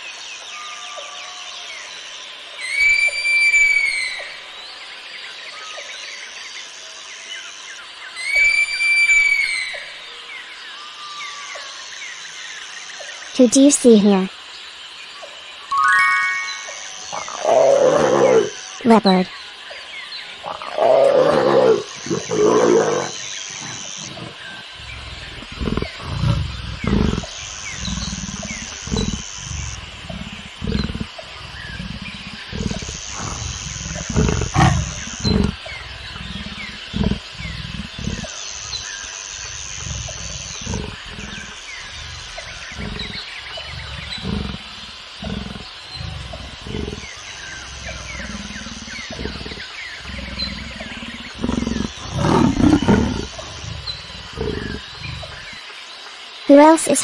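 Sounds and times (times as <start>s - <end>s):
leopard grunting: 17.0s - 19.1s, 20.2s - 55.7s.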